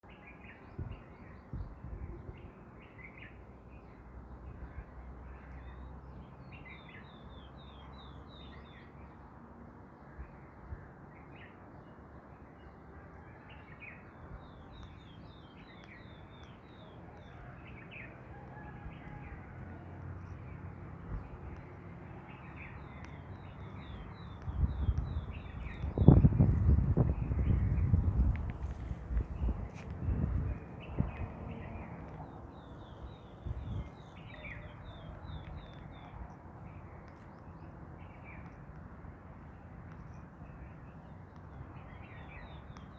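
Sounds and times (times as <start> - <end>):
wind rumbling on microphone: 0.6 - 2.8, 14.2 - 38.6.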